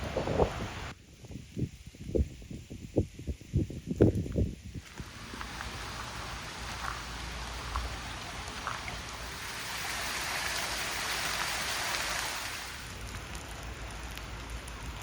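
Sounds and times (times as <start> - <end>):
rain falling: 4.8 - 15.0.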